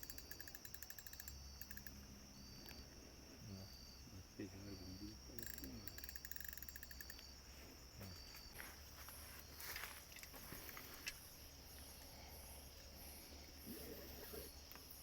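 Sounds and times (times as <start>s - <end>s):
insects chirping: 0.0s - 15.0s
rustle: 7.6s - 12.1s.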